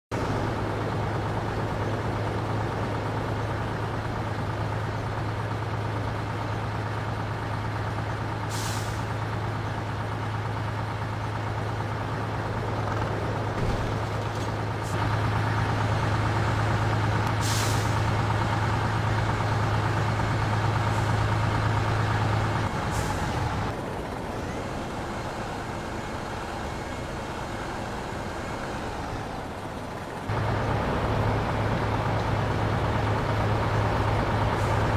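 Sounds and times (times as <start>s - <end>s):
diesel engine running: 0.0s - 34.9s
air brake hisses: 17.4s - 18.0s.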